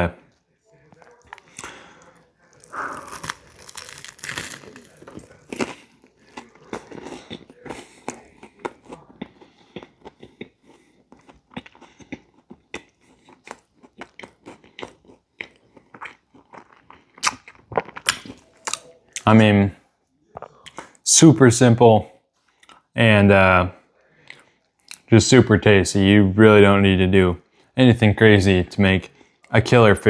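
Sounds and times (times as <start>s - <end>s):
person chewing a sandwich: 0.0s - 19.4s, 20.1s - 21.0s, 22.3s - 23.0s, 24.0s - 25.1s.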